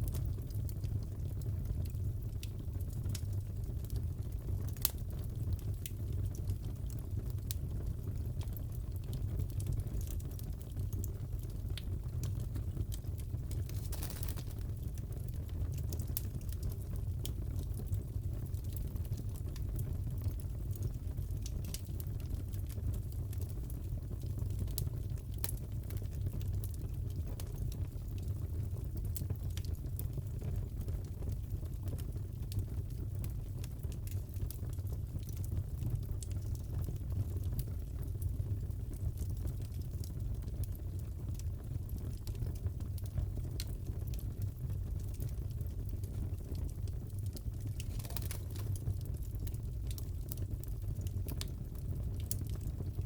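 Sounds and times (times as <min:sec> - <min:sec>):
wood fire crackling: 0:00.0 - 0:53.0
burning wood rumble: 0:12.7 - 0:16.3, 0:46.8 - 0:51.4.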